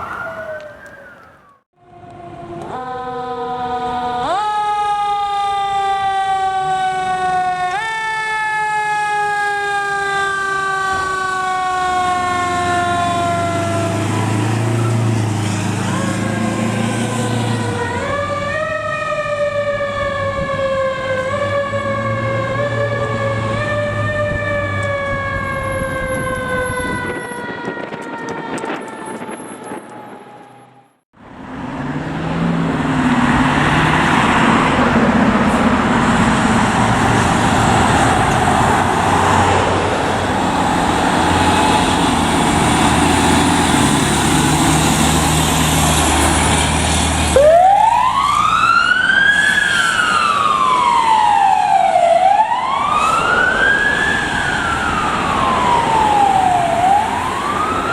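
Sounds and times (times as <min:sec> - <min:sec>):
electronic wail siren: 0:00.0 - 0:31.0, 0:47.3 - 0:57.9
siren tone winding down: 0:00.0 - 0:31.0, 0:32.9 - 0:57.9
fire truck passing: 0:00.0 - 0:57.9.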